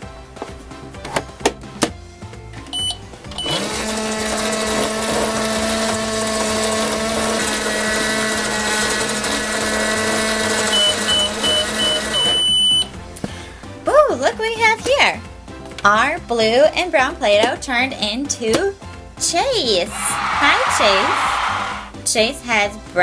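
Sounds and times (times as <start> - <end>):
quick evenly spaced beeps: 2.8 - 3.6.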